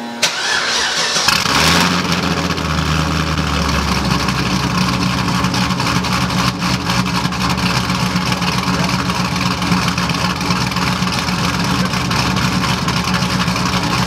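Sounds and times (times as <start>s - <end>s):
engine starter cranking: 0.2s - 2.4s
car engine loud pulsing idle: 0.3s - 14.0s.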